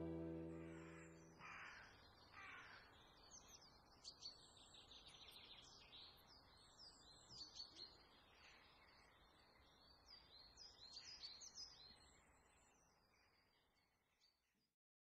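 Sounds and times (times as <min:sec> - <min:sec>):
small birds chirping: 0:00.0 - 0:14.4.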